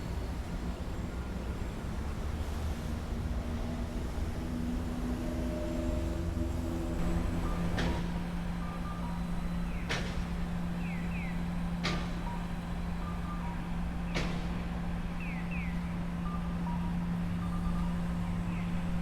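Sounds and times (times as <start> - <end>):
low machine hum: 5.5 - 19.0.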